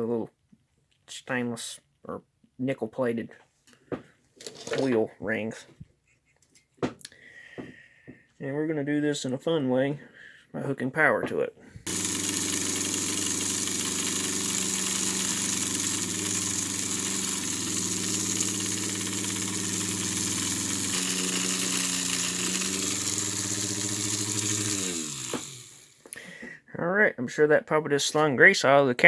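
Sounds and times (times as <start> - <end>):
electric motor whirring: 11.8 - 26.1.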